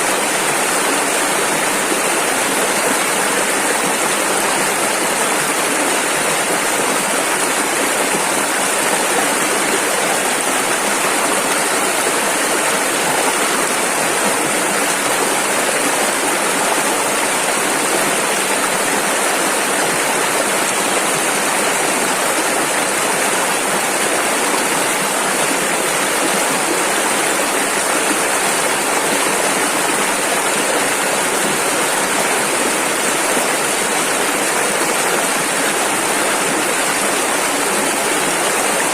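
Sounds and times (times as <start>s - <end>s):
river rushing over rapids: 0.0s - 38.9s.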